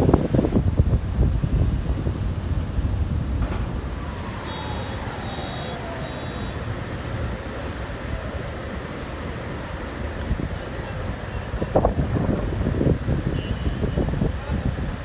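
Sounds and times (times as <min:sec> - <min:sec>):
wind rushing: 0:00.0 - 0:08.3
low wind rumble on microphone: 0:00.0 - 0:15.0
passing vehicle: 0:00.0 - 0:15.0.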